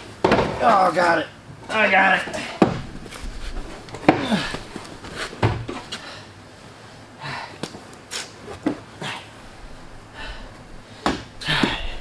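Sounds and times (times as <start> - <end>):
knocks and clicks of car parts: 0.2 - 0.6, 5.4 - 5.8
heavy breaths of effort: 4.0 - 5.3, 7.0 - 7.7, 9.0 - 12.0.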